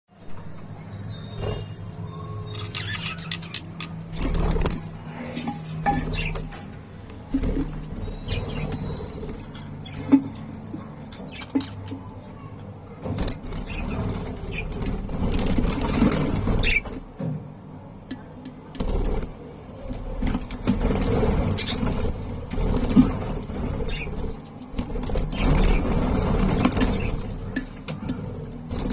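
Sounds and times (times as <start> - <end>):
budgies chirping: 1.0 - 4.7, 5.9 - 6.6, 7.4 - 11.9, 13.4 - 17.0, 21.4 - 24.4, 25.0 - 28.1
budgerigars chirping: 2.5 - 3.9, 16.5 - 16.9, 21.5 - 21.9, 23.8 - 24.2
wing flutters: 2.5 - 11.9, 13.0 - 17.2, 18.8 - 28.9.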